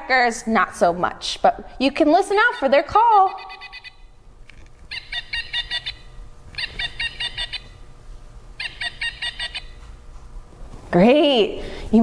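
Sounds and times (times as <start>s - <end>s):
woodpecker calling: 2.4s - 4.1s, 4.9s - 7.8s, 8.6s - 9.8s.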